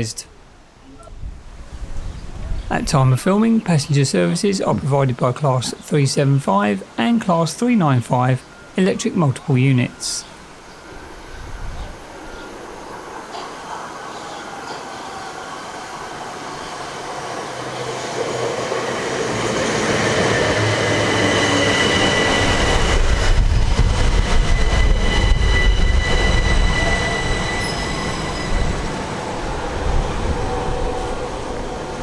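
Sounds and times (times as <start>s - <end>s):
train low rumble: 2.3s - 32.0s
electric train high-pitched whine: 8.4s - 32.0s.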